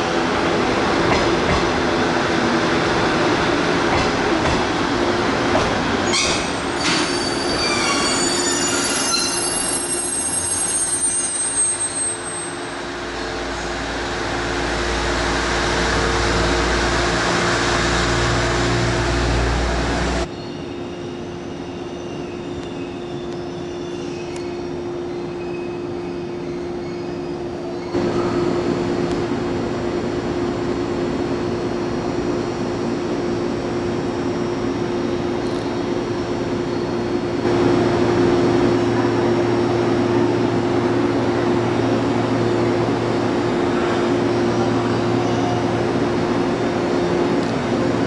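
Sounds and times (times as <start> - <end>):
low train rumble: 0.0 - 48.0
train wheels and brakes squealing: 6.0 - 12.9, 20.3 - 28.6.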